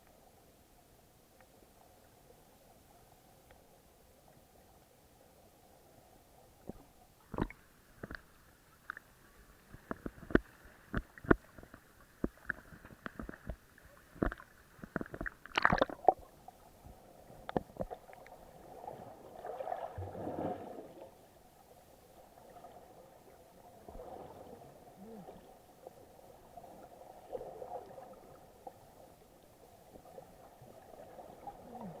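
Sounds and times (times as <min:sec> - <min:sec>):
muffled water gurgling and sloshing: 0:00.0 - 0:32.0.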